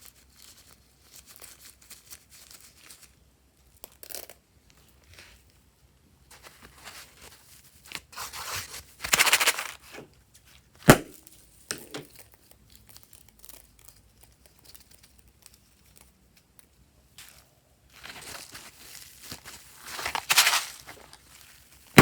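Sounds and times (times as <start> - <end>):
crinkling and tearing materials: 6.4 - 10.1, 12.1 - 16.5, 17.2 - 22.0
sharp snap: 10.9 - 11.8.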